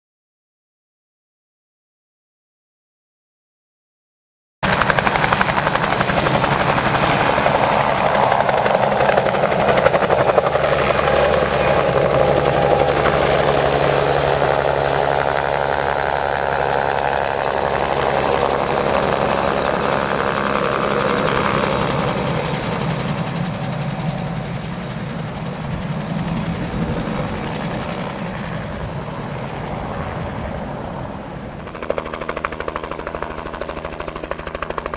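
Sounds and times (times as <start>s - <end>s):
helicopter rotor and engine: 4.6s - 34.9s.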